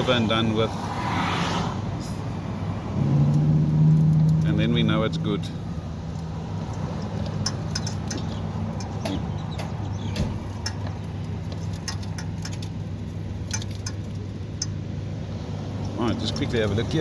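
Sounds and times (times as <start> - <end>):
light clicks and clinks: 6.1 - 14.8.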